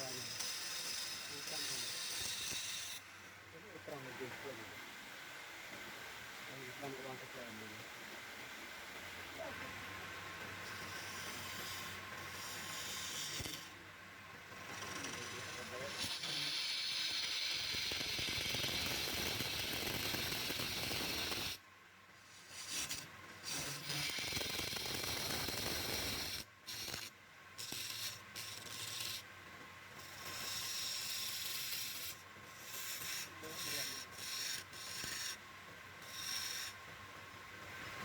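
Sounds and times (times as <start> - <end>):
abrasive rubbing on wood: 0.0 - 3.1, 30.0 - 35.4.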